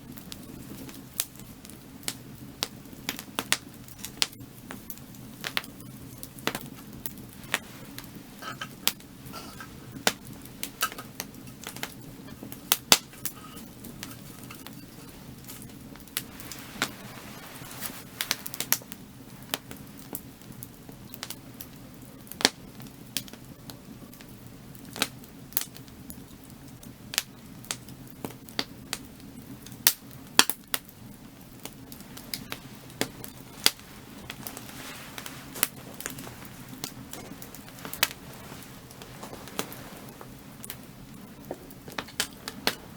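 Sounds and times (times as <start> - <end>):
steady low hum: 0.0 - 19.9
firewood crackling and popping: 0.0 - 42.9.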